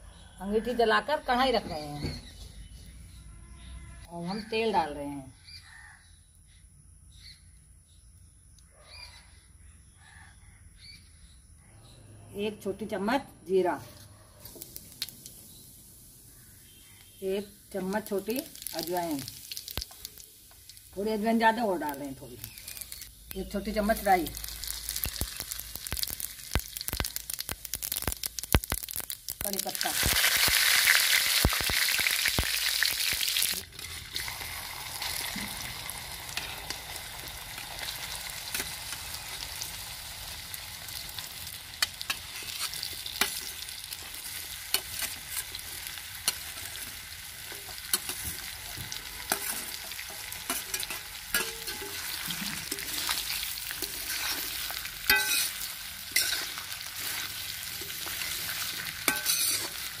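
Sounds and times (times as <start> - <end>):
food frying in a pan: 14.4 - 60.0
leaves spluttering in hot oil: 14.4 - 60.0
steel spoon scraping iron pan: 49.3 - 59.9.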